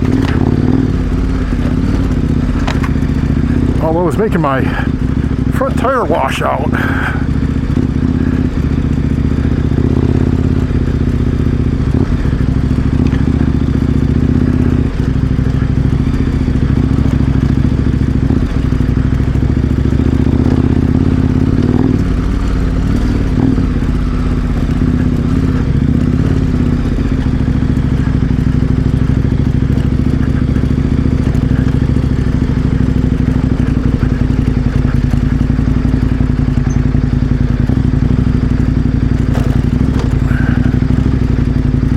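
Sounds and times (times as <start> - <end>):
motorcycle engine running: 0.0 - 41.9
knocks and clatter from gravel: 2.5 - 3.0.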